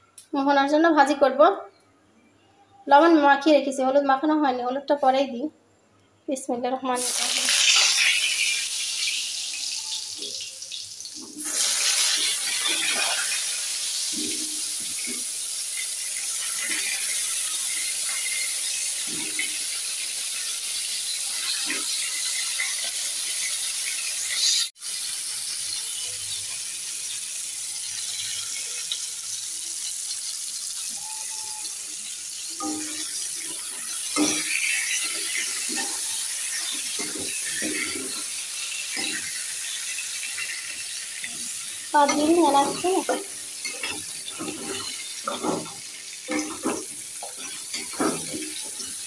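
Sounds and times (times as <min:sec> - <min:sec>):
vegetables sizzling in hot oil: 0:06.9 - 0:49.0
metal spatula stirring in pan: 0:11.3 - 0:20.5, 0:31.0 - 0:49.0.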